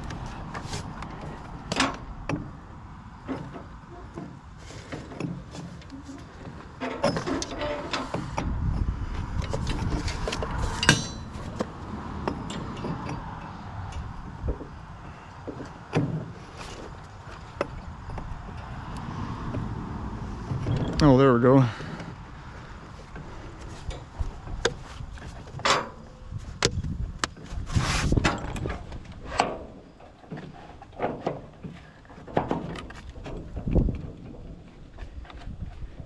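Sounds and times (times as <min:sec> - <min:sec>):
metal clanks and clicks: 0:00.0 - 0:02.6, 0:03.2 - 0:14.8, 0:23.1 - 0:27.5, 0:28.1 - 0:35.8.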